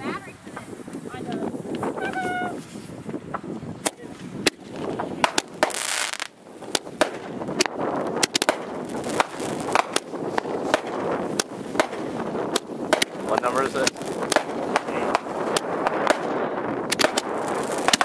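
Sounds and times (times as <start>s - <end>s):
fireworks cracking and popping: 0.0s - 18.0s
firework hiss: 3.8s - 18.0s.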